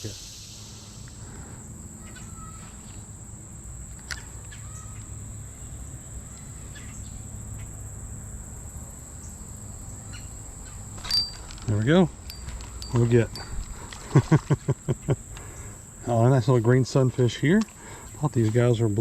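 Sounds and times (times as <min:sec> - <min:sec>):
high-pitched insect drone: 0:00.0 - 0:16.1
low outdoor rumble: 0:00.0 - 0:19.0.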